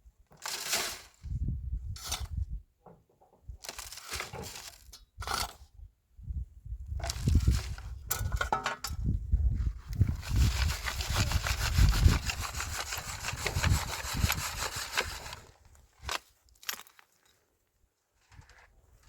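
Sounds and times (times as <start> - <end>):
dry soil scraping and rustling: 0.2 - 2.5, 3.6 - 5.6, 6.9 - 8.4, 9.4 - 16.5.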